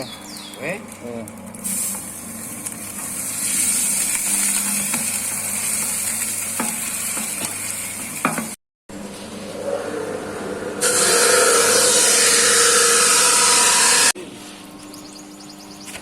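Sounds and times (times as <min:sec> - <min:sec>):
meat sizzling: 0:01.6 - 0:08.6
machine motor humming: 0:09.4 - 0:14.2.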